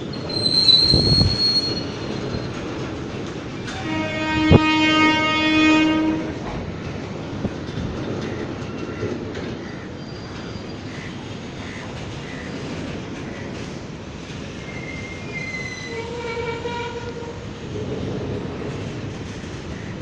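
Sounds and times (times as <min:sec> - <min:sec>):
train wagons rolling on rails: 0:00.0 - 0:20.0
train horn blast: 0:03.7 - 0:06.4, 0:15.8 - 0:17.5.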